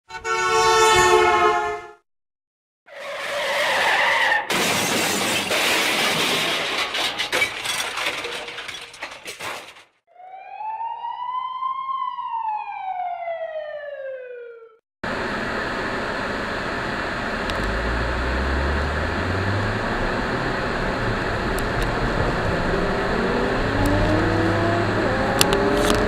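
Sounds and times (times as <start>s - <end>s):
crashing and shattering: 4.5s - 10.0s
rising and falling siren-like tone: 10.1s - 15.3s, 17.4s - 26.0s
in-car road noise: 15.1s - 26.0s.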